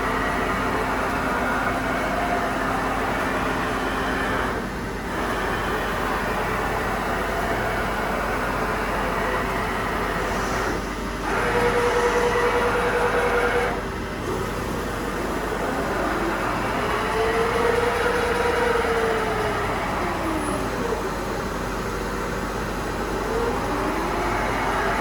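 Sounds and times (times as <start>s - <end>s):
machine drive whine: 0.0s - 25.0s
machine running: 0.0s - 25.0s.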